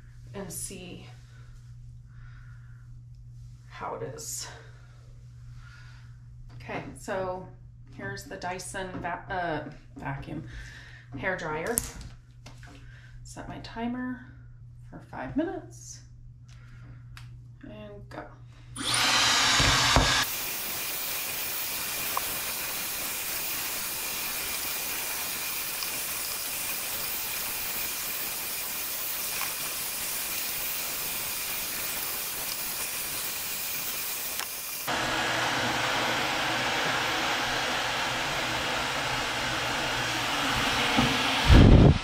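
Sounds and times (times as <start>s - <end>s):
hair dryer blowing: 18.8s - 42.0s.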